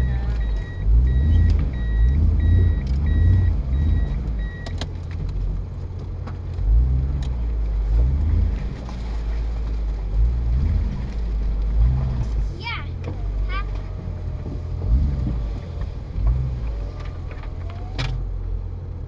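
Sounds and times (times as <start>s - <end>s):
reversing beeper: 0.0s - 4.7s
vehicle engine revving unevenly: 0.0s - 19.0s.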